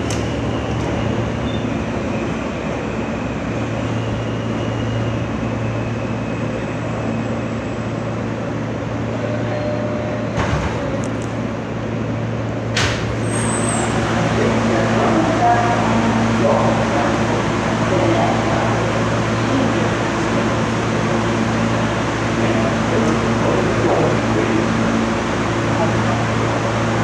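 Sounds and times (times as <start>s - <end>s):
subway car interior rumble: 0.0s - 27.0s.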